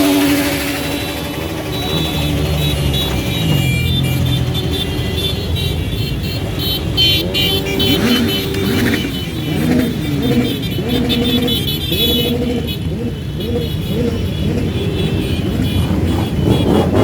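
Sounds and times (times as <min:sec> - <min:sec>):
motorcycles revving past: 0:06.4 - 0:17.0.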